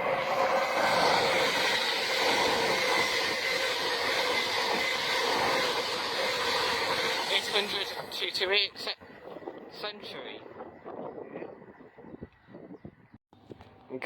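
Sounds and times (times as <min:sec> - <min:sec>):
train wheels on rail: 0:00.0 - 0:08.3
train diesel engines rumbling: 0:00.0 - 0:08.9.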